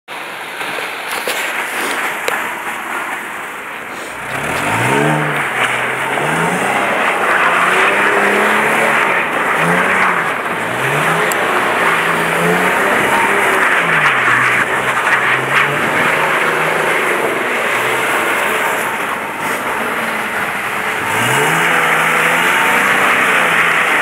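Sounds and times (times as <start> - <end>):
tyres spinning on snow: 0.2 - 24.0
car engine revving: 0.6 - 24.0.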